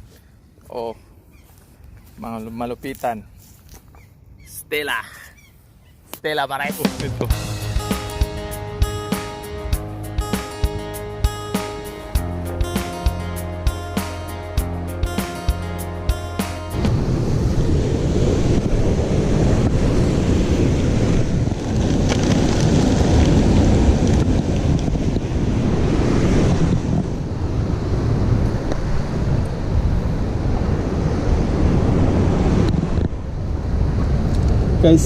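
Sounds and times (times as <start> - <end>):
sea surf: 6.5 - 35.0
guitar music: 6.6 - 17.2
wind buffeting microphone: 16.8 - 35.0.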